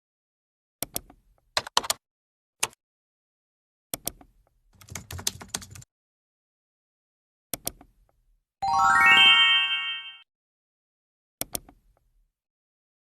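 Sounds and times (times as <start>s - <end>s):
keyboard typing clicks: 0.8s - 2.0s, 3.9s - 5.9s, 7.5s - 7.9s, 11.4s - 11.8s.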